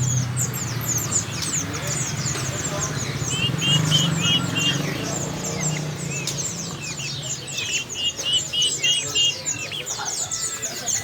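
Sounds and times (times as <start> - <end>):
songbirds chirping: 0.0 - 11.0
low background murmur: 0.4 - 11.0.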